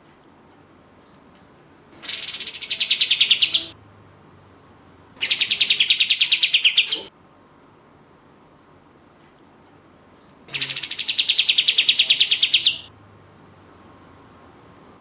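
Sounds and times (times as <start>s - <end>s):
bird singing rattling trills: 2.0s - 3.8s, 5.2s - 7.1s, 10.5s - 12.9s.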